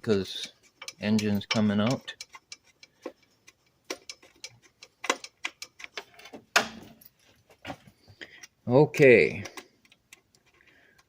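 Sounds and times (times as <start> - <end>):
hand tool clicking and tapping: 0.3 - 7.0.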